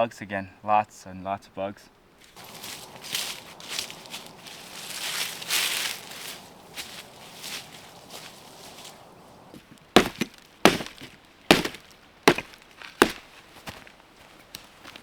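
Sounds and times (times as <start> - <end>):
hammer knocking stake: 9.6 - 13.2.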